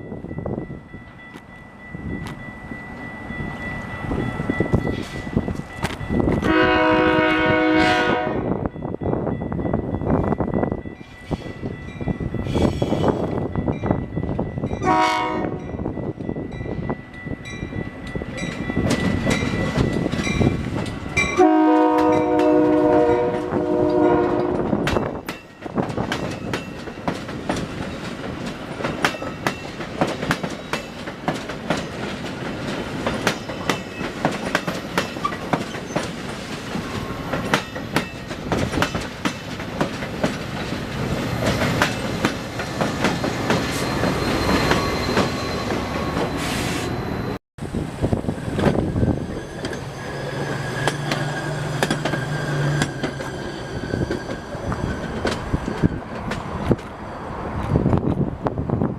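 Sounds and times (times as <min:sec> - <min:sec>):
train wheels clacking on rails: 0:03.3 - 0:07.6, 0:17.8 - 0:47.4, 0:48.3 - 0:58.3
train horn blasts: 0:06.4 - 0:08.7, 0:14.8 - 0:15.8, 0:21.3 - 0:24.8.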